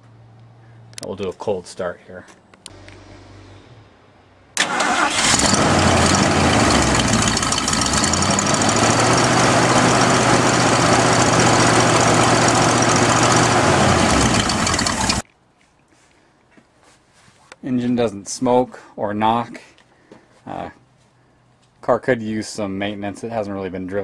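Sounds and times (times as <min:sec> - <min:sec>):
car engine starting and idling: 0:04.5 - 0:15.2.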